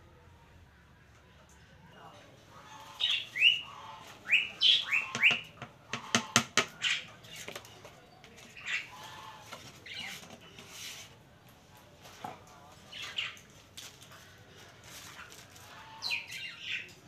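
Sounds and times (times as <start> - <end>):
bird chirping: 2.7 - 5.6.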